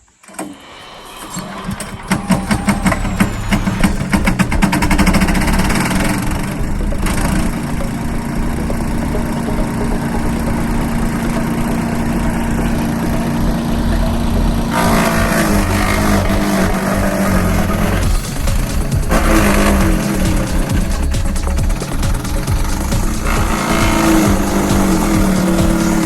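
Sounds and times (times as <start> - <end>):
noisy high-pitched grinding: 0.0 - 26.0
chipper engine running: 1.0 - 26.0.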